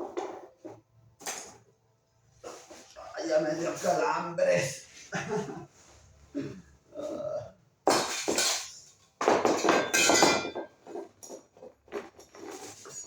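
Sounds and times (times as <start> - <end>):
fan parts clattering and scraping: 8.0 - 13.0.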